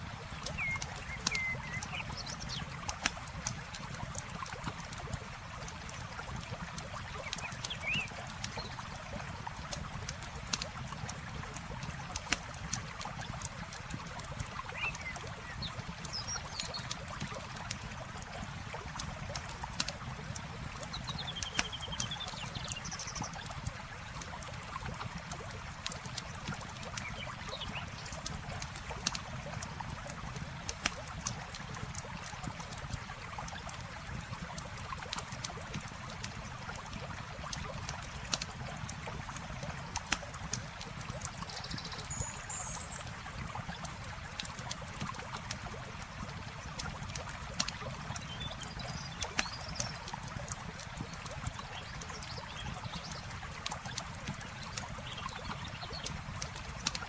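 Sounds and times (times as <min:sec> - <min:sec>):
flowing river water: 0:00.0 - 0:57.0
campfire crackling and popping: 0:00.1 - 0:22.1, 0:22.7 - 0:42.2, 0:42.8 - 0:57.0
bird chirps: 0:00.5 - 0:02.6.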